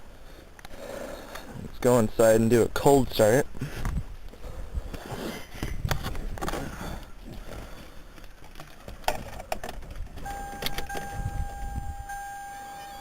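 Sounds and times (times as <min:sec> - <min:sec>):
steady high electronic tone: 0:10.3 - 0:13.0.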